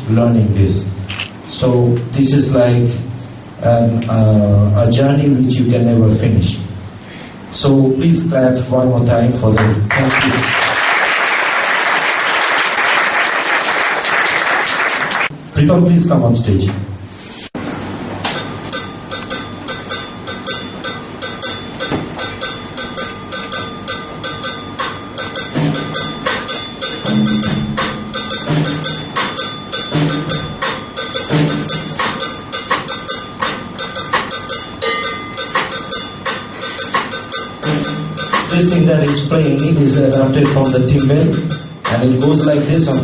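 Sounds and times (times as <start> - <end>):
cowbell strikes: 18.3 - 43.0
low drum hits: 27.1 - 29.3.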